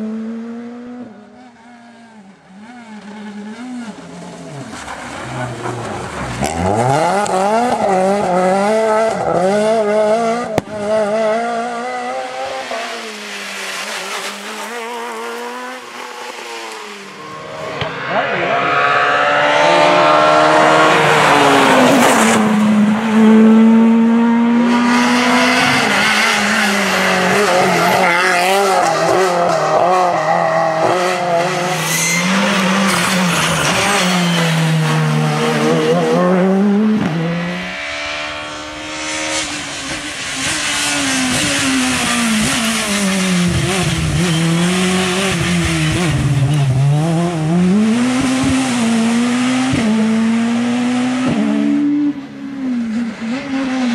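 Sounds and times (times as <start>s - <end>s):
rally car engines revving: 0.0s - 53.9s
tyres squealing and skidding: 4.8s - 6.9s, 31.6s - 36.2s, 39.7s - 45.9s.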